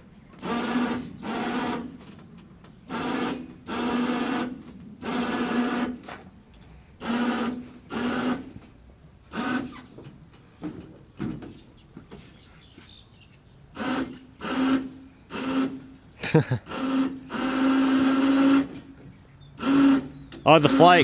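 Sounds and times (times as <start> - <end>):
electric winch motor hum: 16.7 - 18.9, 19.5 - 21.0.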